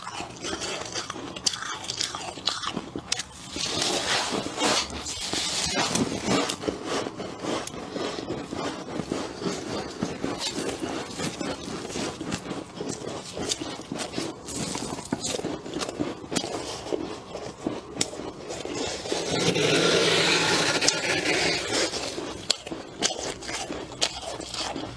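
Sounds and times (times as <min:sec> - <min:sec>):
frost being chewed crunching: 0:00.0 - 0:24.9.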